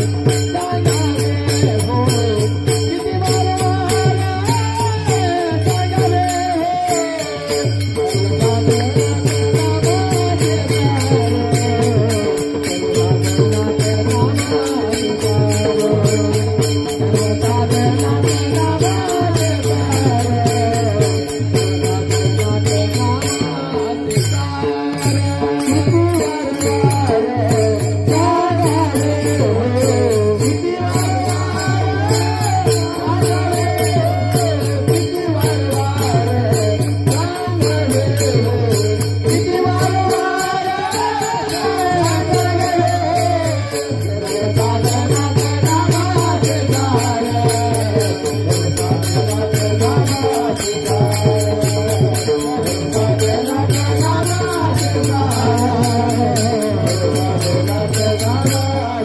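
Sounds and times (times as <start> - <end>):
drum beating steady rhythm: 0.0 - 59.0
hand cymbals: 0.0 - 59.0
man singing devotional song: 0.0 - 59.0.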